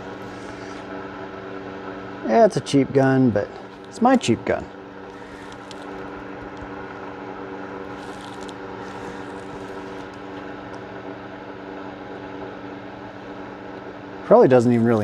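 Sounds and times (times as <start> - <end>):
space heater humming: 0.0 - 15.0
faint clicks: 5.0 - 7.0.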